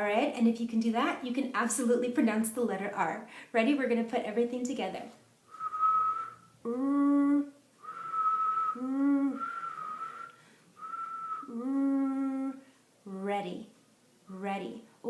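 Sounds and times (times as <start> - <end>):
woman whistling short notes: 5.5 - 6.5, 7.8 - 11.6
woman humming notes: 5.6 - 12.6.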